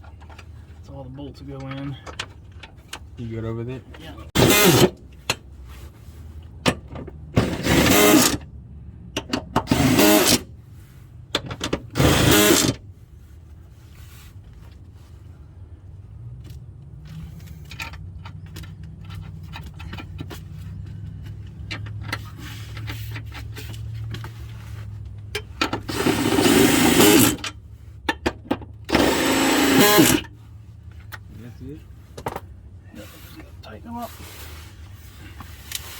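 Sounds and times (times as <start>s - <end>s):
power drill bursts: 4.4s - 4.9s, 7.4s - 8.4s, 9.7s - 10.4s, 12.0s - 12.8s, 25.9s - 27.4s, 28.9s - 30.3s.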